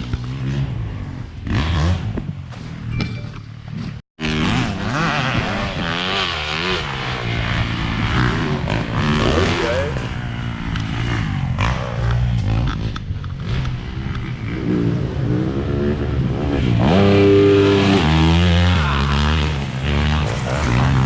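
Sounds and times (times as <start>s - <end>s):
motocross bike engine revving: 0.0s - 21.0s.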